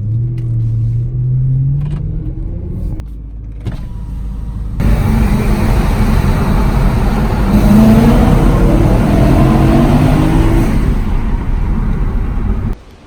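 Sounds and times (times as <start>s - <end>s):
car engine accelerating: 3.7s - 12.8s.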